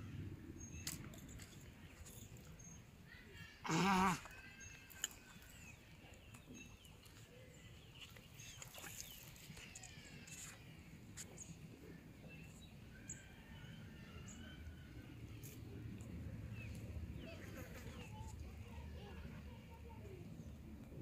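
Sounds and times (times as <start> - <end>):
faint birds chirping: 0.0 - 21.0.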